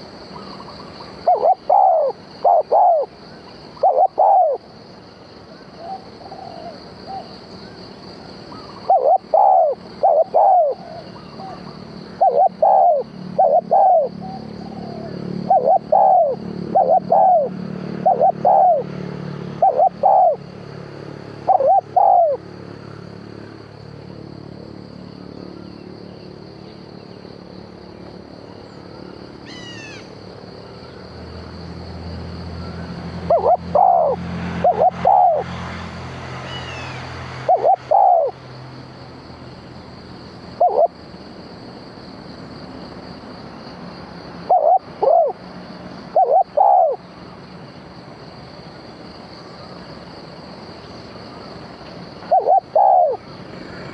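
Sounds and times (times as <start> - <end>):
dove cooing: 0.4 - 3.2, 3.8 - 4.6, 5.8 - 7.3, 8.5 - 20.4, 21.4 - 22.4, 33.2 - 35.5, 36.6 - 38.4, 40.6 - 41.0, 44.4 - 45.4, 46.1 - 47.0, 52.2 - 53.2.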